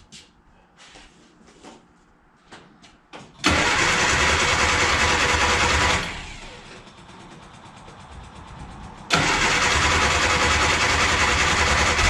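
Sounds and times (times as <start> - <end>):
car engine starting and running: 3.4 - 12.0.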